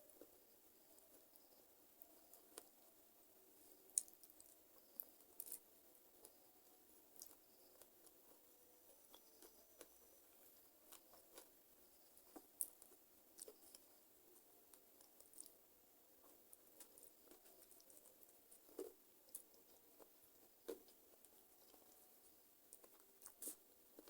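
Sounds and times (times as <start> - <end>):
person chewing crunchy food: 3.8 - 6.4, 7.1 - 8.4, 9.1 - 13.9, 14.7 - 15.6, 16.2 - 22.0, 22.7 - 24.0.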